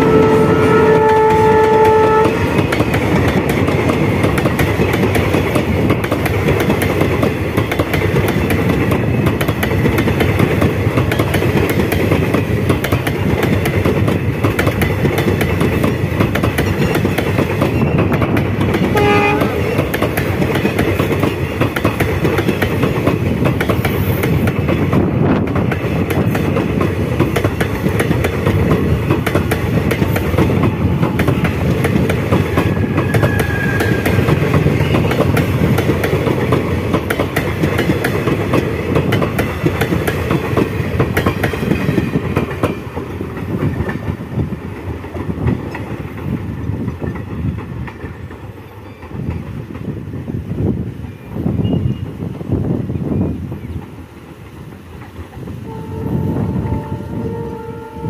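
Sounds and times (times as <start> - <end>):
train horn: 0.0 - 2.6, 18.8 - 19.9, 32.5 - 34.4, 55.6 - 58.0
train wheels rushing on rail: 0.0 - 58.0.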